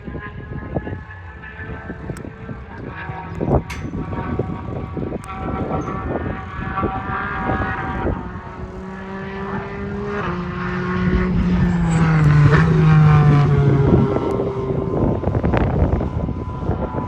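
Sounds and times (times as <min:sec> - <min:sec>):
race car passing at speed: 0:00.1 - 0:17.0.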